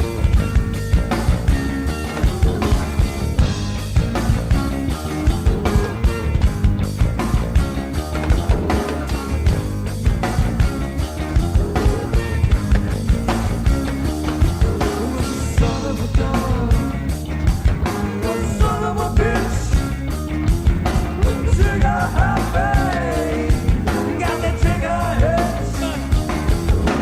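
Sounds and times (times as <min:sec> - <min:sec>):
rock song with drums: 0:00.0 - 0:27.0
person singing: 0:14.4 - 0:17.0, 0:18.0 - 0:19.9, 0:21.1 - 0:27.0.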